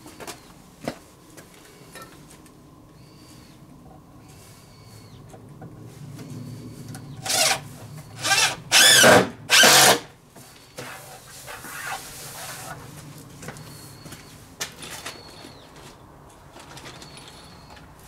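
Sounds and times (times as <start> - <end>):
power drill bursts: 7.2 - 7.6, 8.2 - 10.1.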